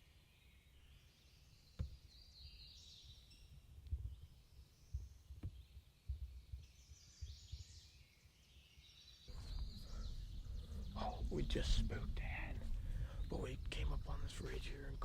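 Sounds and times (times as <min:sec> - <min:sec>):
songbirds singing: 0:00.0 - 0:15.0
soft low thumps: 0:04.9 - 0:07.7, 0:09.3 - 0:15.0.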